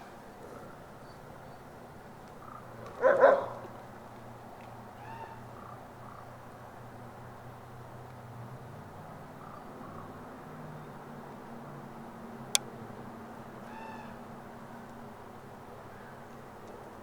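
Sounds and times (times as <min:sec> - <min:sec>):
wolf bark-like call: 0:02.9 - 0:03.7.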